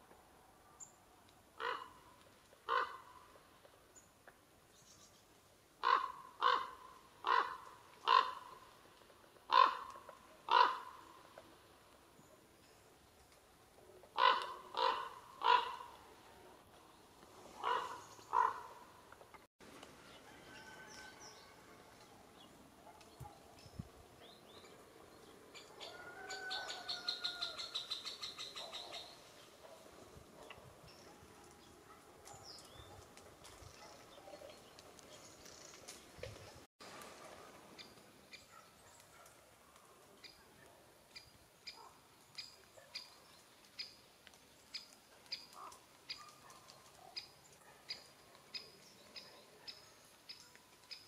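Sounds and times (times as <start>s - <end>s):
bird cawing: 1.6s - 2.1s, 2.7s - 3.3s, 5.8s - 8.6s, 9.5s - 11.1s, 14.2s - 16.0s, 17.6s - 18.9s.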